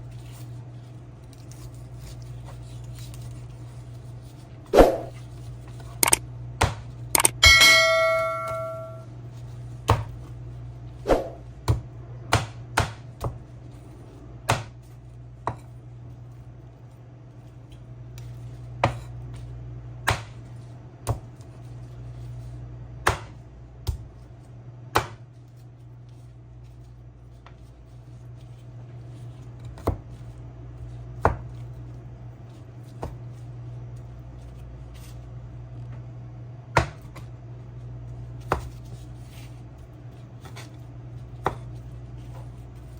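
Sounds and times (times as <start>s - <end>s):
knife chopping on cutting board: 6.0s - 9.0s, 9.9s - 10.2s, 11.1s - 13.4s, 14.4s - 15.7s, 18.8s - 19.2s, 20.0s - 20.4s, 23.0s - 24.1s, 24.9s - 25.2s, 29.6s - 30.2s, 31.1s - 31.6s, 32.9s - 33.2s, 36.7s - 37.2s, 38.4s - 40.8s, 41.4s - 42.9s
low hum: 7.2s - 9.1s.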